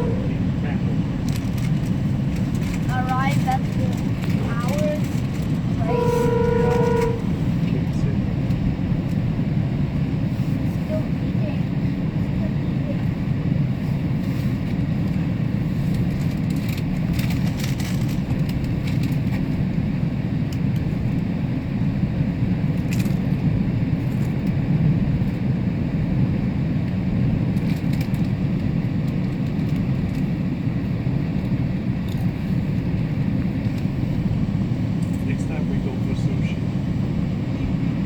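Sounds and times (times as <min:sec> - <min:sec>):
train rumbling: 0:00.0 - 0:38.0
light clicks and rattles: 0:15.9 - 0:19.6.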